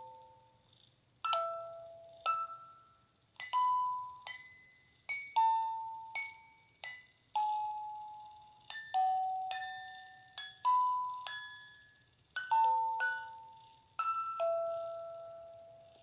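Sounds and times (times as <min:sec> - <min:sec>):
bell-like chime melody: 0:03.5 - 0:15.9.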